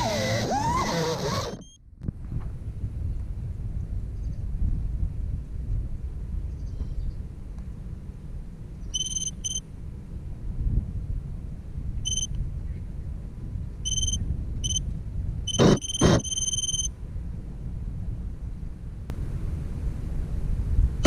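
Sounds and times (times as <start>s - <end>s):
wind rumble on microphone: 1.9s - 9.0s, 9.7s - 15.8s, 16.9s - 21.0s
high-pitched electronic beeps: 9.0s - 9.6s, 12.1s - 12.3s, 13.9s - 14.8s, 15.5s - 16.9s.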